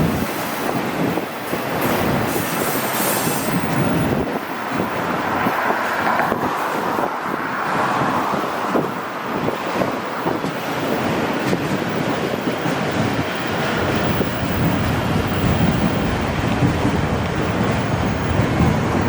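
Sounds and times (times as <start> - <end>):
train wheels clattering over rails: 0.0 - 4.1, 9.6 - 19.0.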